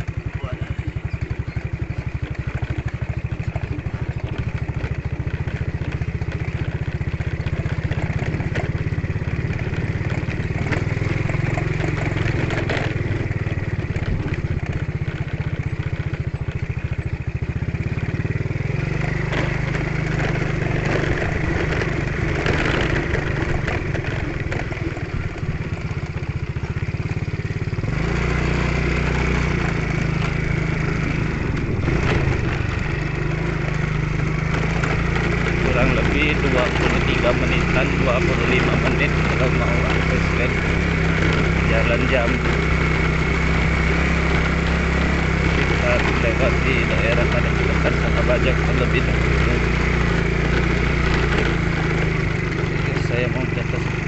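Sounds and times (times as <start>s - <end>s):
knocks and rattles: 0.0s - 28.0s, 28.8s - 54.0s
motorcycle engine running: 0.0s - 54.0s.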